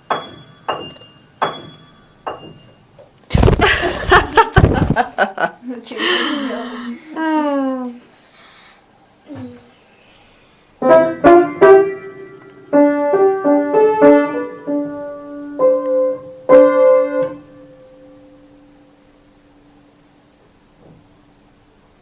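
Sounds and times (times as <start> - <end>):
uneven piano notes and chords: 0.0 - 2.9, 10.8 - 18.5.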